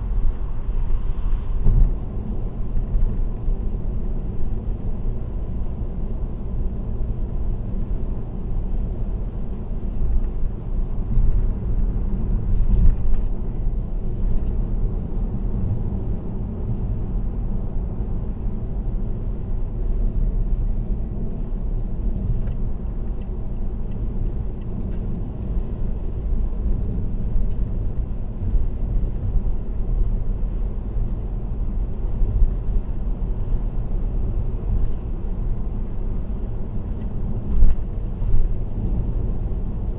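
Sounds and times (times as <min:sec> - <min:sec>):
car road rumble: 0:00.0 - 0:39.9.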